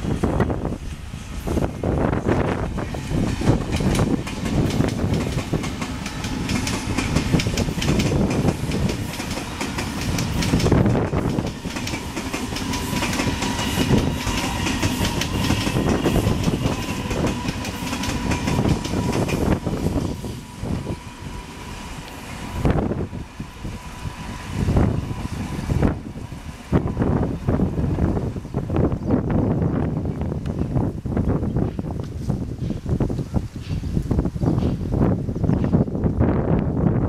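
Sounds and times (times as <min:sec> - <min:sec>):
heavy train rumble: 0:00.0 - 0:37.0
train wheels clattering over joints: 0:02.2 - 0:21.0.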